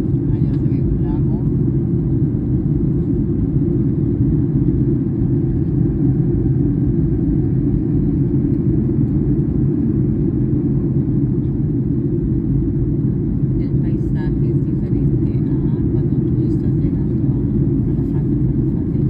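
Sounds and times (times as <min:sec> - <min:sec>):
jet engine rumble in cabin: 0:00.0 - 0:19.0.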